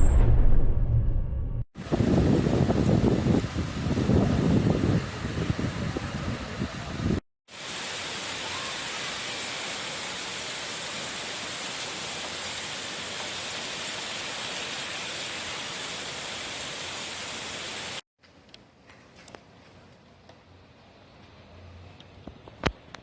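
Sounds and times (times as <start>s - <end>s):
heavy rain pouring: 1.8s - 18.0s.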